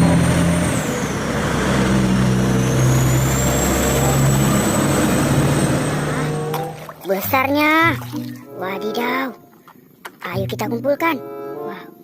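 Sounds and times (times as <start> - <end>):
vehicle engine running: 0.0 - 8.1
high engine whine: 0.0 - 9.6.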